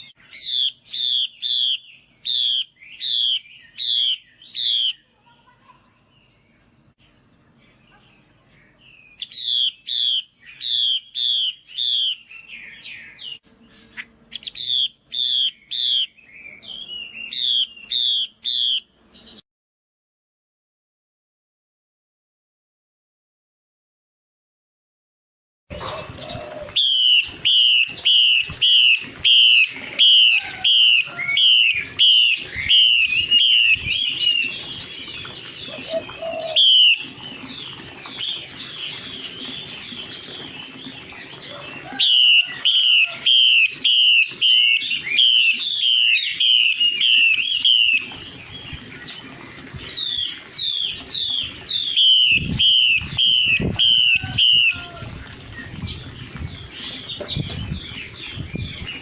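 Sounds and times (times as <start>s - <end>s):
bird whistling repeated notes: 0.0s - 5.1s, 9.1s - 13.4s, 14.3s - 18.9s, 26.8s - 34.5s, 36.0s - 37.2s, 42.1s - 48.2s, 50.0s - 54.8s
bird warbling: 0.0s - 5.6s, 9.2s - 18.9s, 25.7s - 55.2s.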